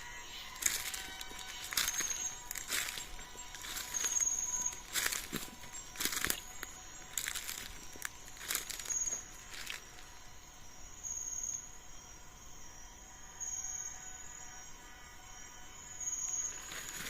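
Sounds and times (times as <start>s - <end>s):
insect pulsed trill: 0.0s - 17.0s
footsteps on dry leaves: 0.2s - 10.2s, 16.5s - 17.0s.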